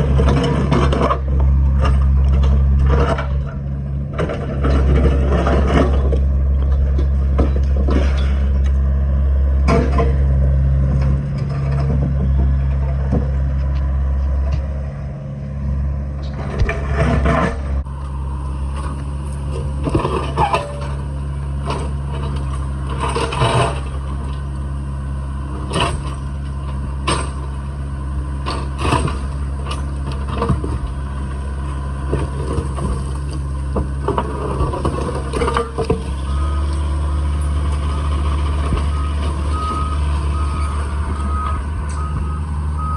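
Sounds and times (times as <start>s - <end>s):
concrete slabs scraping and crunching: 0.0s - 8.8s, 16.2s - 17.9s, 18.8s - 24.4s, 28.4s - 36.4s
heavy equipment engine running: 0.0s - 42.9s.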